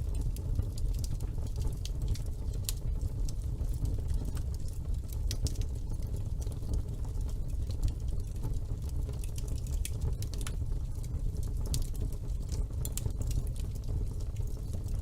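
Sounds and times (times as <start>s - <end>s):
fire crackles and pops: 0.0s - 15.0s
low rumble of flames: 0.0s - 15.0s.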